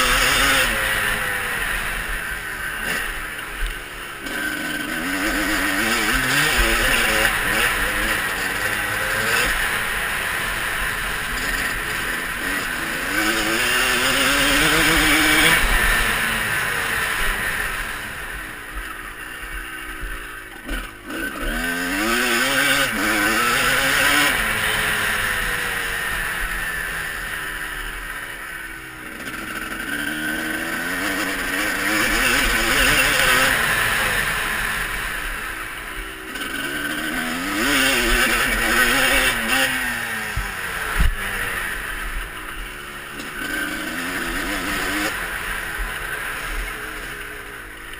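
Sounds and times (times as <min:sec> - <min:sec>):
motorbike engine revving: 0:00.0 - 0:47.9.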